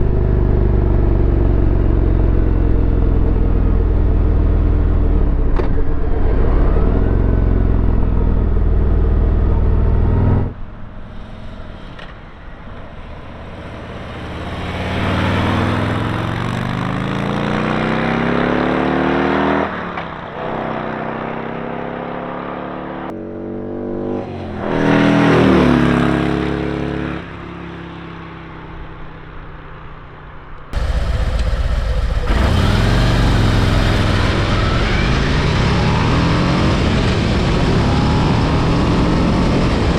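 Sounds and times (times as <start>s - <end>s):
motorcycle accelerating past: 13.0s - 28.5s, 30.8s - 39.9s
loud low engine rumble: 30.7s - 39.9s.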